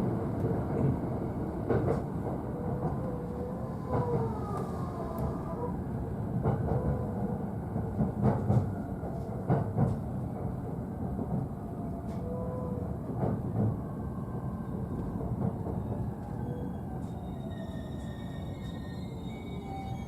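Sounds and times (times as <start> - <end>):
train rumbling: 0.0 - 20.0
rail-joint clacks: 7.9 - 10.0.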